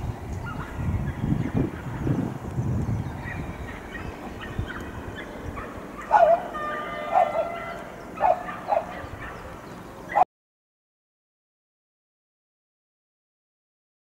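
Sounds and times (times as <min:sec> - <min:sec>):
loud animal-like calls: 0:03.3 - 0:10.2.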